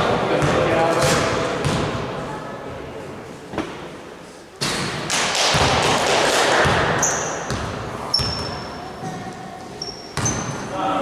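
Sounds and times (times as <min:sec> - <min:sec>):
basketballs bouncing on gym floor: 0:00.1 - 0:02.0, 0:04.6 - 0:10.7
sneakers squeaking: 0:06.6 - 0:11.0.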